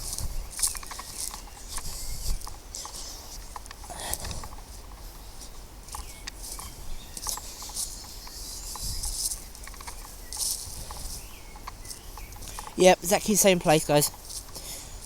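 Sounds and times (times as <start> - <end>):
wind rumble on microphone: 0.0 - 12.8
footsteps on woodland path: 0.0 - 15.0.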